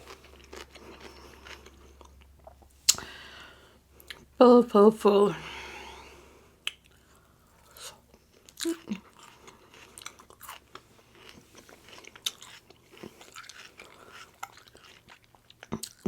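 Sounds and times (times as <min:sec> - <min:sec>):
person chewing food: 0:00.0 - 0:04.4, 0:06.5 - 0:16.0.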